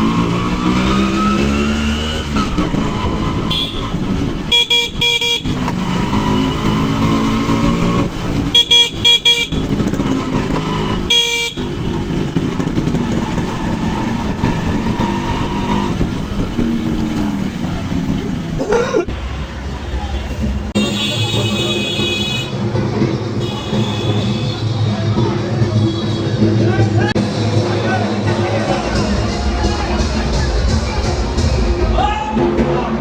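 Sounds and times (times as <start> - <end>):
two-stroke motorcycle engine: 0.0 - 27.7
vehicle horn short beeps: 3.5 - 5.5, 8.5 - 9.7, 11.1 - 11.7.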